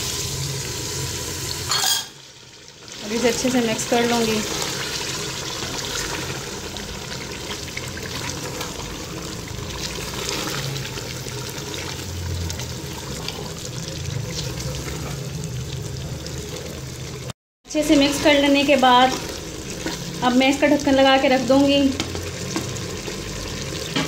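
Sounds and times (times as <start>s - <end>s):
food sizzling in oil: 0.0s - 24.0s
wooden spoon stirring and scraping: 7.1s - 15.4s, 17.7s - 20.6s.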